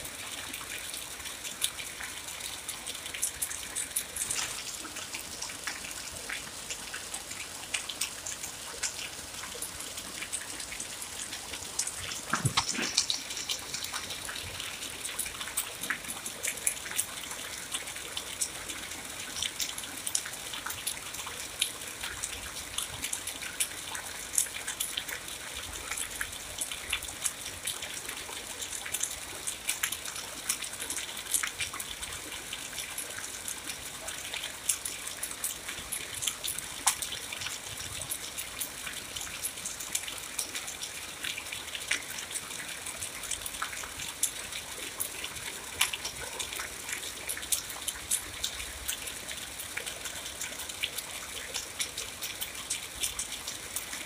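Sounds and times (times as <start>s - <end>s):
steady rain hiss: 0.0s - 54.0s
close raindrop hits: 11.2s - 16.2s.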